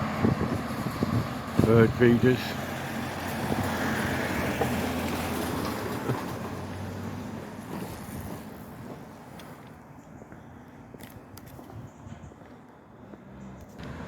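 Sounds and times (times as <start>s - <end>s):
motor vehicle passing: 0.0s - 9.0s, 13.0s - 14.0s.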